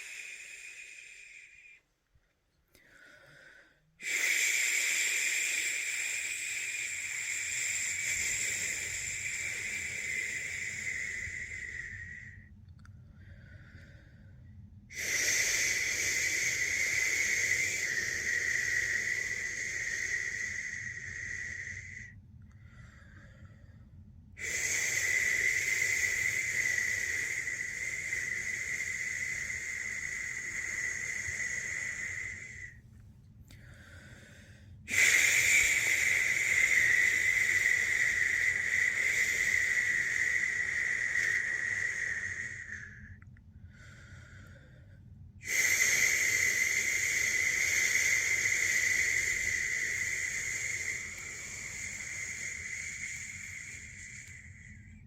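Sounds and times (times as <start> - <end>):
quiet breath: 0.0 - 55.0
person shushing: 24.4 - 32.8, 45.4 - 54.7.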